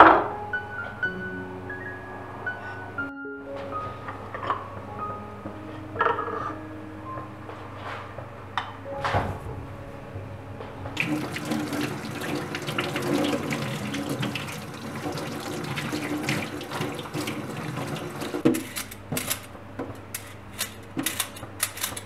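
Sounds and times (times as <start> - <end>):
hands rinsing a vegetable: 11.0 - 18.5
tap water running: 11.0 - 18.6.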